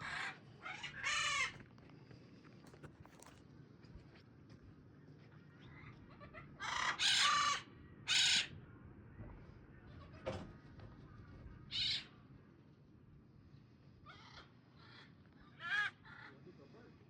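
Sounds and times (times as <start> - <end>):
macaws squawking: 0.0 - 1.6, 6.2 - 8.5, 11.7 - 12.1.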